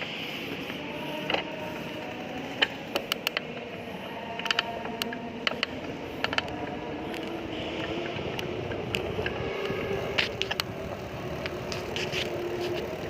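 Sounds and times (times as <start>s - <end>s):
bicycle clicks and rattles: 0.0s - 13.0s
road and traffic noise: 0.0s - 13.0s.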